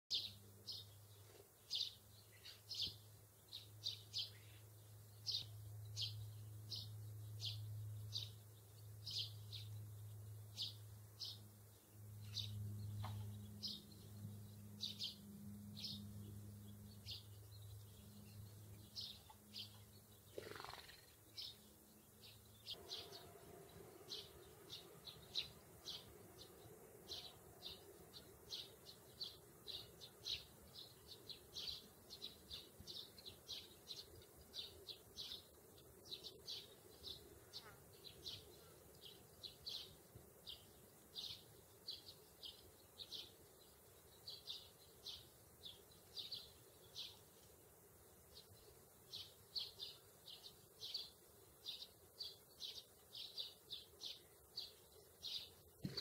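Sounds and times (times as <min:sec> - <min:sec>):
small songbird chirping: 0:00.0 - 0:56.0
faint low hum: 0:00.1 - 0:56.0.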